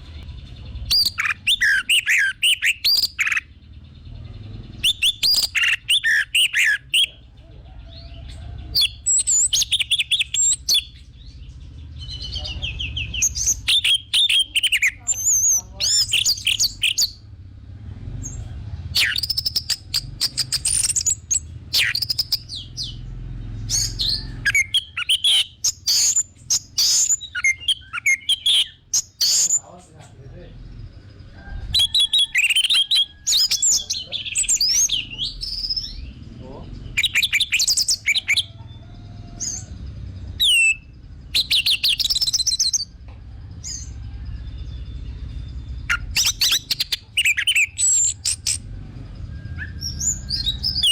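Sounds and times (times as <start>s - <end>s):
thrush singing whistled phrases: 0.9s - 3.5s, 4.8s - 7.1s, 8.8s - 11.0s, 12.0s - 17.3s, 19.0s - 23.0s, 23.7s - 29.8s, 31.6s - 36.2s, 36.9s - 38.5s, 40.3s - 42.9s, 45.5s - 48.7s.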